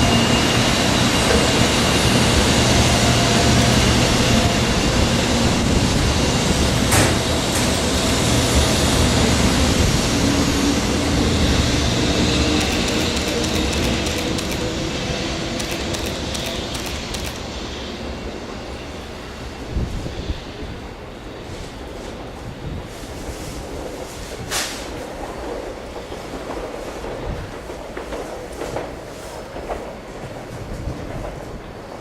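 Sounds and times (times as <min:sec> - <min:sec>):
train running on tracks: 0:00.0 - 0:32.0
sharp click: 0:12.6 - 0:14.6, 0:15.6 - 0:17.4.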